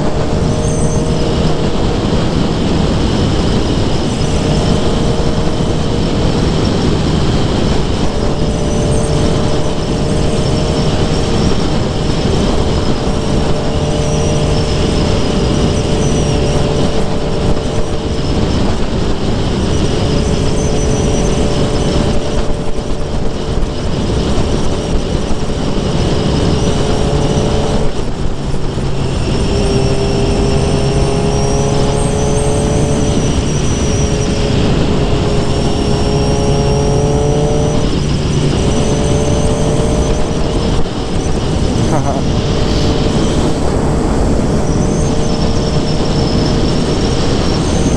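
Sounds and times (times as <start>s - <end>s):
motorcycle engine and exhaust: 0.0s - 47.9s.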